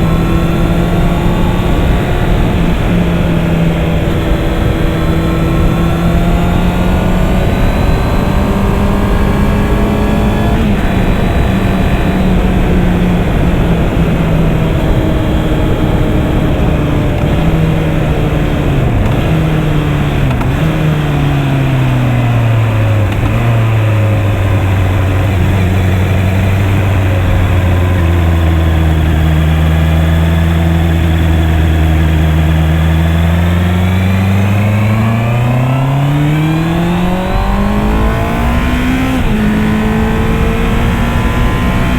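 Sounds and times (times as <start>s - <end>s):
wind noise rushing: 0.0s - 20.7s
motorcycle engine running: 0.0s - 41.9s.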